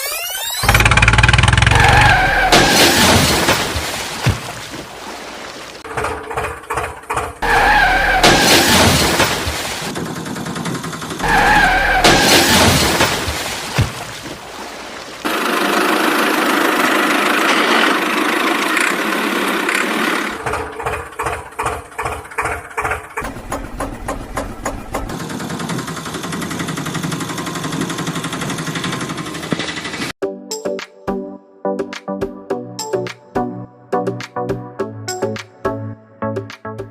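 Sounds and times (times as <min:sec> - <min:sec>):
vehicle engine running: 0:09.9 - 0:11.4, 0:15.3 - 0:30.1.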